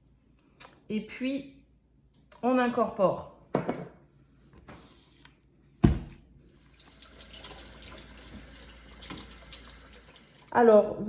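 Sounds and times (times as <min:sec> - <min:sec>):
kitchen tap running: 0:06.4 - 0:10.6
water splashing into sink: 0:06.5 - 0:10.6.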